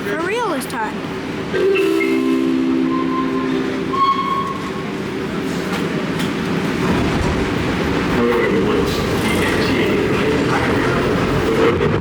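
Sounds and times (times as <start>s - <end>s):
subway train rolling past: 0.0s - 12.0s
chord of held tones: 1.6s - 4.8s.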